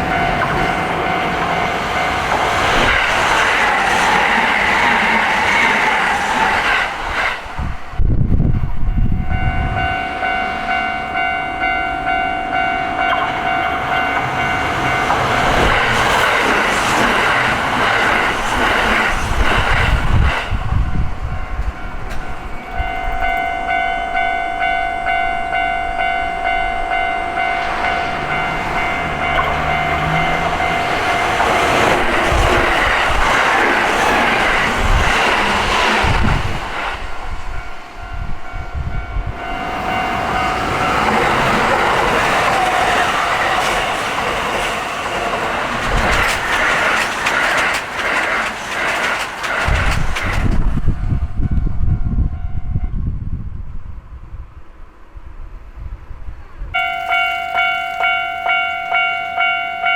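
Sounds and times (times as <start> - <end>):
train wheels clattering on rails: 0.0 - 7.7, 9.3 - 23.8, 25.5 - 38.1, 39.4 - 51.6
level crossing ringing tone: 22.5 - 31.9, 56.8 - 59.9.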